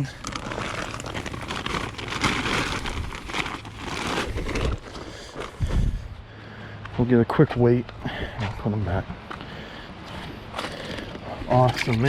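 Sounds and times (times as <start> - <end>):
fabric crinkling and rustling: 0.0 - 5.8.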